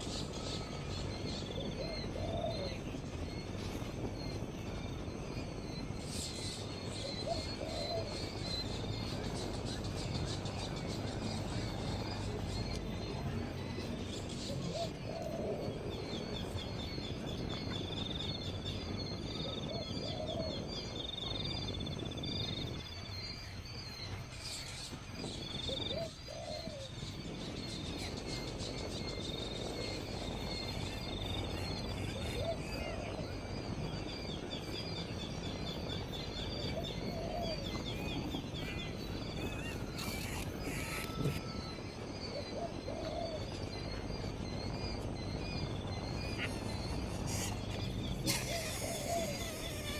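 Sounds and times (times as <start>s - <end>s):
bird low hooting: 0.0s - 22.5s, 24.4s - 49.9s
insect trills: 0.0s - 49.9s.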